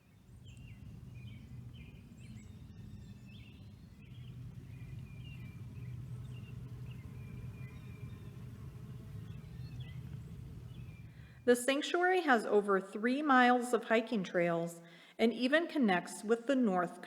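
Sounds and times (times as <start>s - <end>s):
small birds chirping: 0.0s - 11.5s
steady low rumble: 0.0s - 11.6s.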